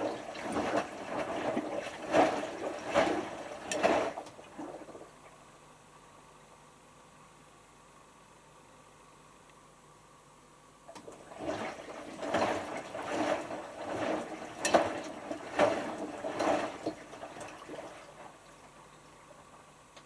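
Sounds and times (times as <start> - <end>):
washing machine drum turning: 0.0 - 4.3, 10.9 - 18.3
water and laundry sloshing: 0.0 - 5.4, 10.9 - 19.7.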